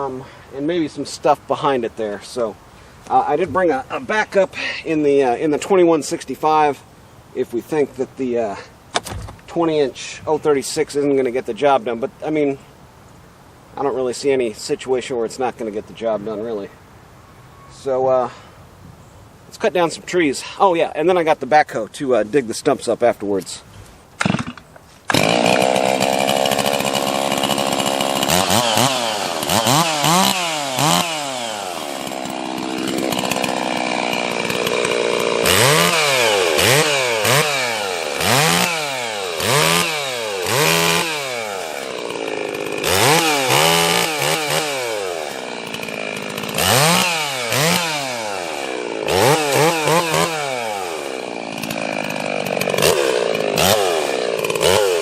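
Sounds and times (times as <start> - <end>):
chainsaw revving: 24.2 - 55.0.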